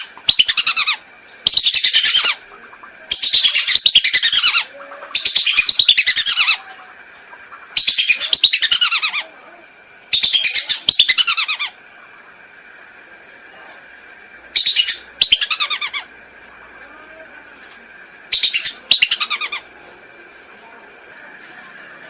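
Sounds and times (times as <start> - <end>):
whistling ducks calling: 0.0 - 6.7, 7.5 - 9.3, 10.1 - 11.8, 14.5 - 16.1.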